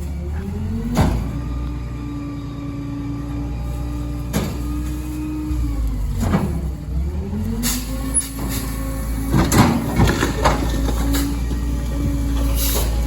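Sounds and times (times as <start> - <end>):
garbage truck engine: 0.0 - 13.0
hydraulic packer running: 0.0 - 13.0
debris cracking and banging: 8.0 - 13.0.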